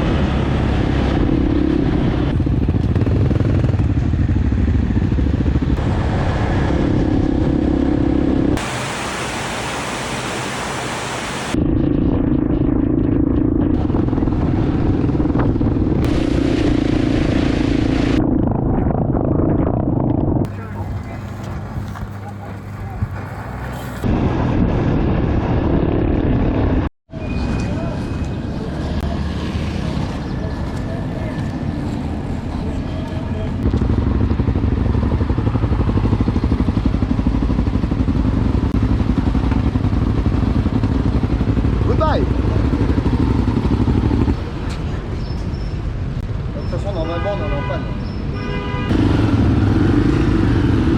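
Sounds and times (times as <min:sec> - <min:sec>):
motorcycle engine running: 0:00.2 - 0:08.8, 0:33.6 - 0:44.5.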